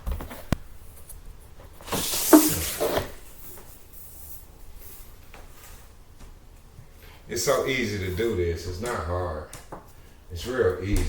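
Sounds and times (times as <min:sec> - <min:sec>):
scraping rustle: 0:00.2 - 0:05.9
flooring piece clicking: 0:08.8 - 0:10.1.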